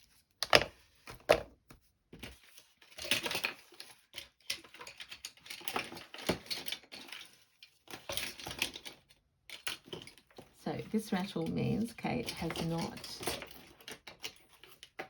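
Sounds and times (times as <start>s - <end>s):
small objects rattling in container: 4.5s - 15.0s.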